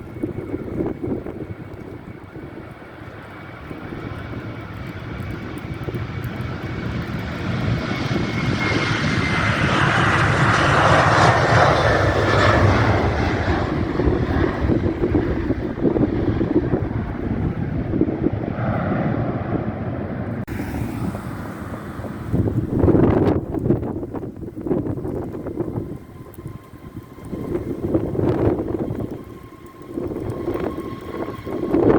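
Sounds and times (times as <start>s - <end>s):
jet airliner passing: 0.0s - 31.9s
wind rumble on microphone: 0.0s - 31.9s
thin engine whine: 7.1s - 31.9s.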